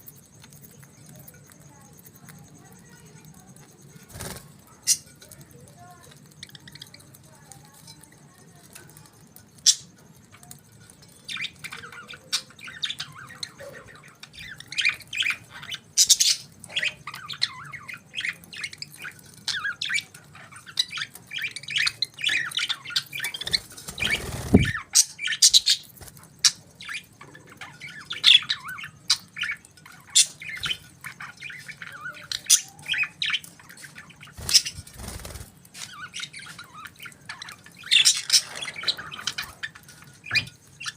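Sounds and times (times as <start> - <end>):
budgerigars chirping: 11.2 - 40.9.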